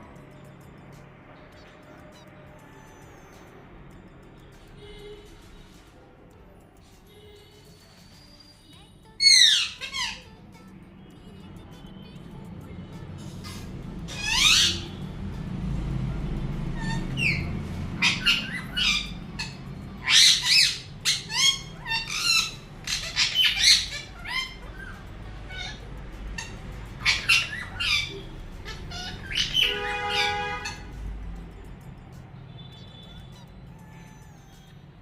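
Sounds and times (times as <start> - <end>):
parrot squawking: 9.2 - 10.4, 13.2 - 15.4, 16.6 - 31.0, 32.5 - 35.0.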